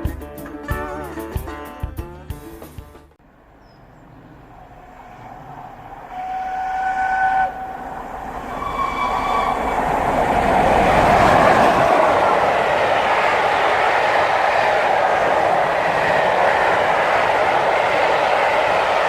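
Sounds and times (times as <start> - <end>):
rush of passing train: 3.3 - 19.0
steam locomotive whistle blasts: 5.0 - 11.4.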